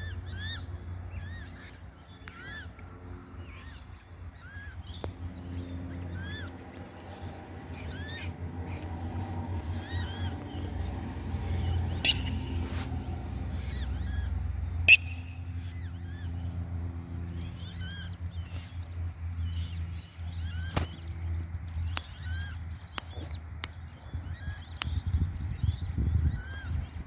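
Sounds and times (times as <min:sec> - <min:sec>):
steady low hum: 0:00.0 - 0:27.0
chicks peeping: 0:01.2 - 0:16.4.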